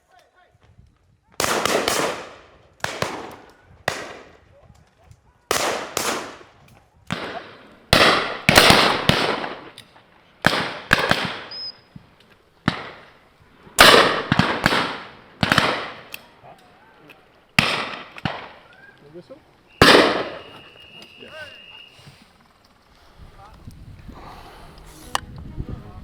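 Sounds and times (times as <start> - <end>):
shotgun shots echoing: 1.4 - 4.4, 5.5 - 11.9, 12.6 - 18.8, 19.7 - 20.9.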